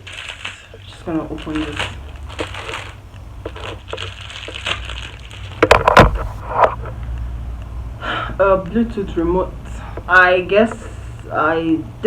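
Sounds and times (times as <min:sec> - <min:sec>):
packaging rustling and crinkling: 0:00.0 - 0:06.8.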